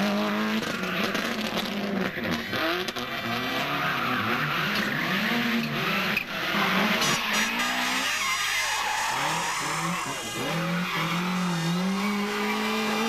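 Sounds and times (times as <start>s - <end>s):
rally car engine revving: 0.0s - 13.0s
tyre and road noise: 0.0s - 13.0s.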